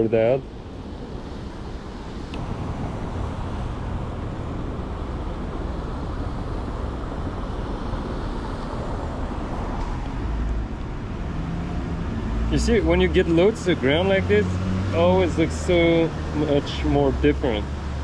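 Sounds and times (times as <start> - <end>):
city street traffic: 0.0 - 18.0
low rumble of passing cars: 0.0 - 18.0.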